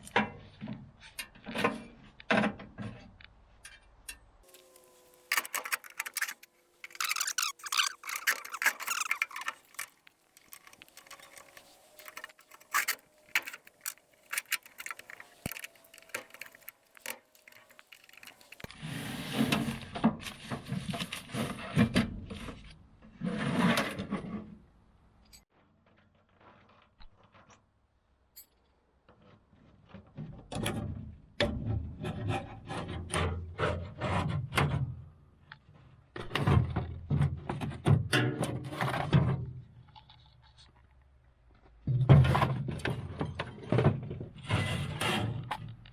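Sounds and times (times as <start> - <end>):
faint squeaks: 4.5 - 18.7
scraping and rubbing: 4.5 - 24.5
clicks and knocks: 5.3 - 18.7.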